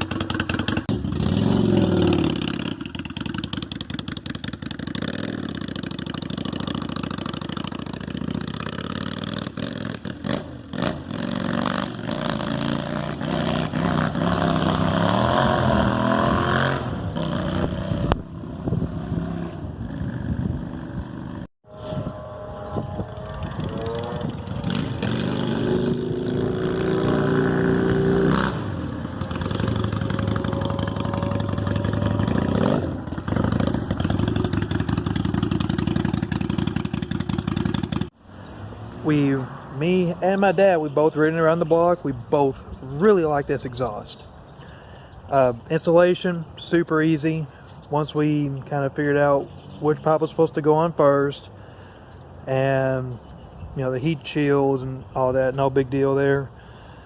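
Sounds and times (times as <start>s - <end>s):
motorcycle engine revving: 0.0s - 38.2s.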